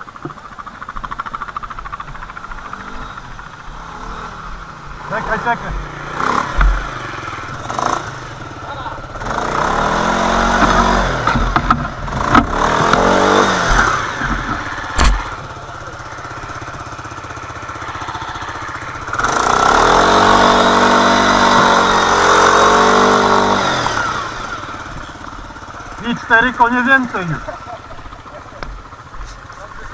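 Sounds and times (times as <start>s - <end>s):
atv engine revving: 0.0s - 29.9s
sharp knocks: 5.7s - 7.2s, 10.4s - 15.5s.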